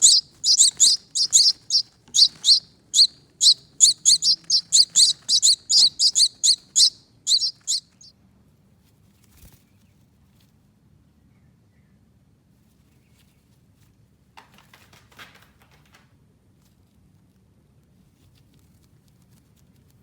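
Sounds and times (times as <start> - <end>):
baby finches begging chirps: 0.0 - 8.1.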